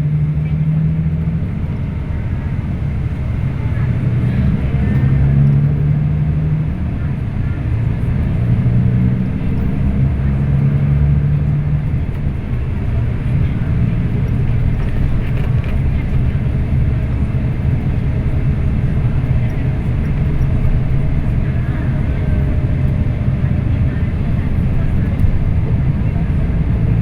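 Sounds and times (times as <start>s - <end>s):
diesel engine drone: 0.0s - 27.0s
road rumble: 0.0s - 27.0s.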